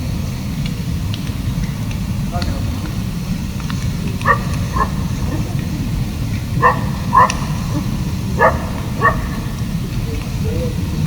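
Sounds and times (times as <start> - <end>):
steady low rumble: 0.0 - 11.0
dog barking: 4.0 - 10.5.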